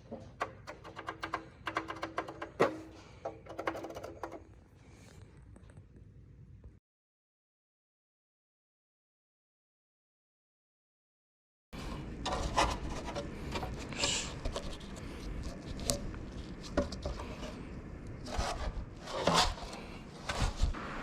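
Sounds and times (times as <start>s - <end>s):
rubbing and scraping handling noise: 0.0s - 5.9s, 11.8s - 21.0s.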